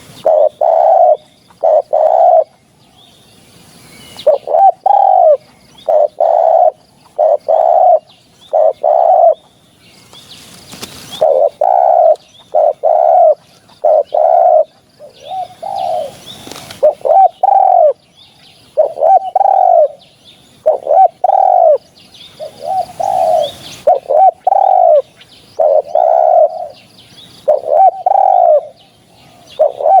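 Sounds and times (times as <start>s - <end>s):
dove cooing: 0.0s - 2.6s, 4.2s - 9.5s, 11.1s - 18.0s, 18.7s - 20.0s, 20.6s - 30.0s
rustling noise: 10.0s - 11.2s, 16.1s - 16.8s.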